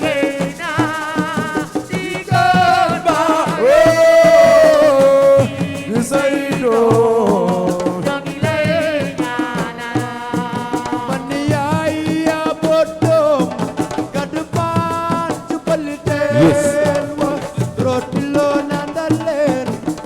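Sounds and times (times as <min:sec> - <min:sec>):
hand drums: 0:00.0 - 0:20.0
shakers: 0:00.0 - 0:20.0
person singing long wavering notes: 0:16.3 - 0:16.9.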